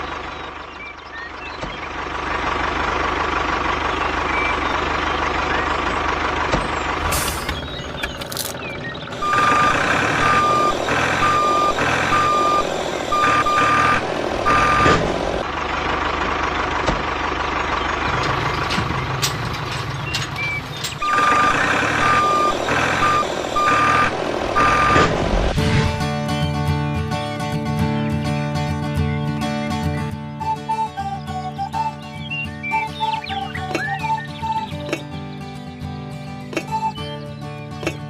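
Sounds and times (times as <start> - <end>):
engine running: 0.0 - 38.0
reversing alarm beeping: 9.2 - 15.1, 20.4 - 25.2.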